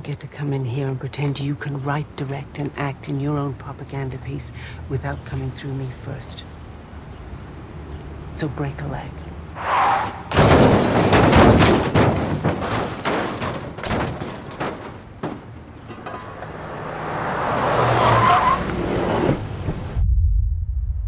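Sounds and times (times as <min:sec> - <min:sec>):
sharp impacts: 0:09.6 - 0:20.0.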